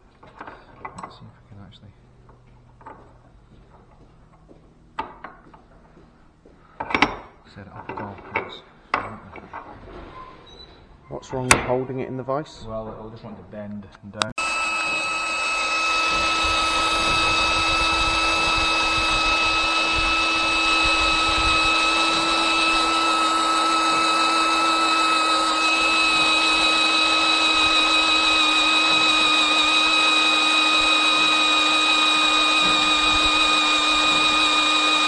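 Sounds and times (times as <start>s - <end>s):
electric drill drilling: 14.4s - 35.0s.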